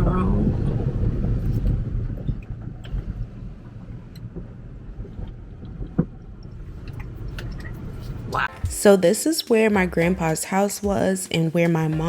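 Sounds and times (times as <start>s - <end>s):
car driving slowly: 0.0s - 8.5s.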